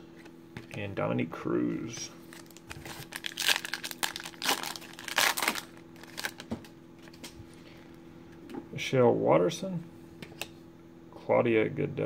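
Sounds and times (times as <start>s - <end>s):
foil wrapper tearing and crinkling: 2.3s - 6.5s.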